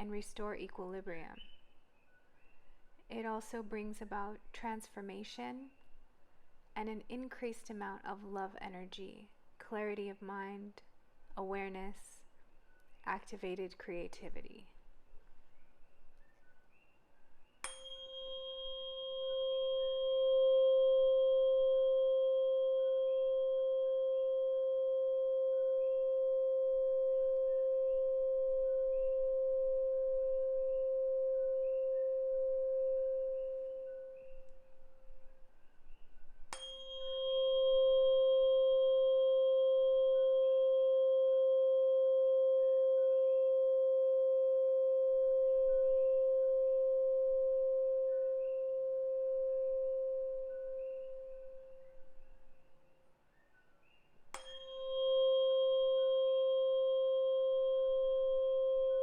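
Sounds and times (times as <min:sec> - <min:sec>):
tuning fork ringing: 0:17.6 - 0:53.0, 0:54.3 - 0:59.0.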